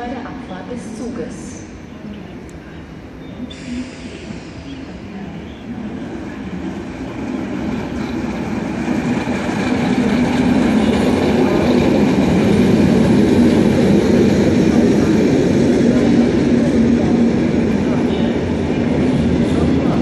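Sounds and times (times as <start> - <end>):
train wheels rumbling past: 0.0 - 20.0.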